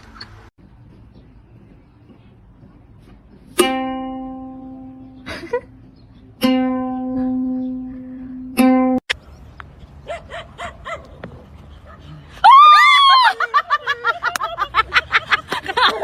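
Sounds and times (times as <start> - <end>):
plucked string notes: 3.5 - 9.1.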